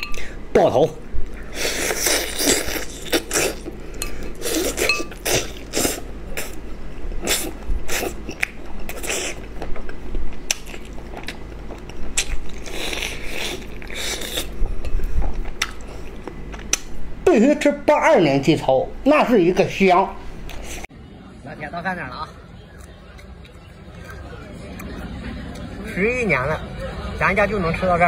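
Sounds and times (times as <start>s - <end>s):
man chewing: 1.3s - 17.0s.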